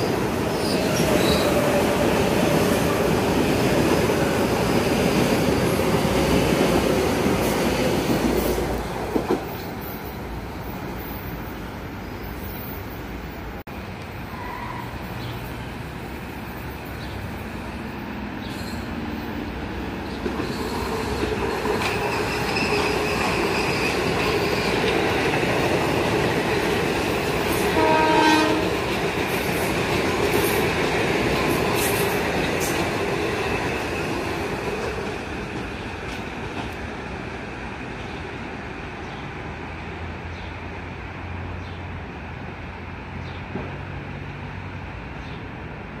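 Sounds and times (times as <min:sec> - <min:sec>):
electric train passing: 0:00.0 - 0:46.0
train horn blast: 0:27.7 - 0:28.8.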